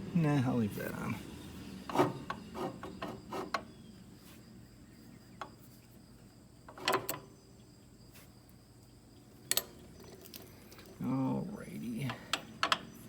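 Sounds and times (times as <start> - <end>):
faint steady hum: 0.0 - 13.0
knocks and clicks of machine parts: 12.1 - 12.9.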